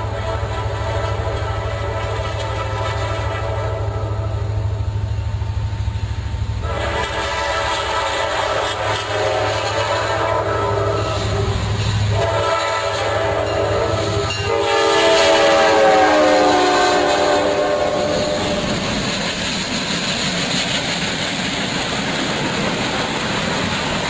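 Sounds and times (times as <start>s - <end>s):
train horn chord: 0.0s - 4.8s, 6.6s - 18.9s
train rushing by: 0.0s - 24.0s.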